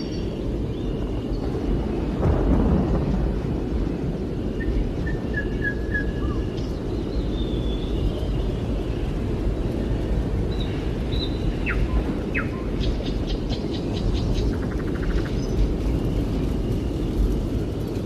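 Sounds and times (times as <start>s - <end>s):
low rumbling noise: 0.0s - 18.0s
small birds chirping: 4.4s - 17.4s.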